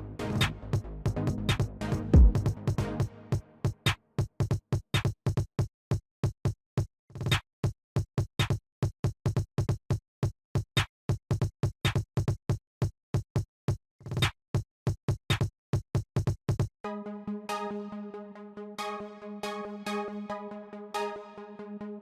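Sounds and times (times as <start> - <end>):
electronic drum machine beat: 1.1 - 2.8.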